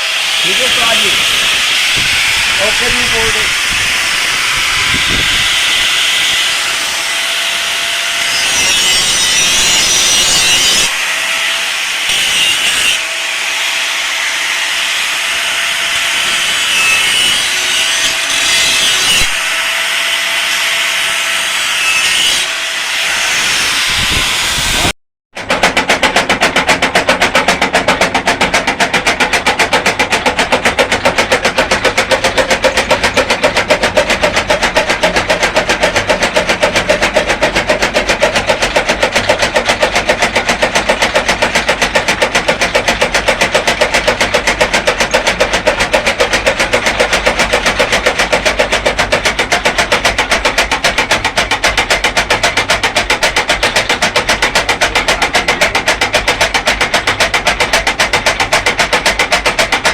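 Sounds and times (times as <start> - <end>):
chaff cutter thumping: 0.4 - 7.1, 25.4 - 59.9.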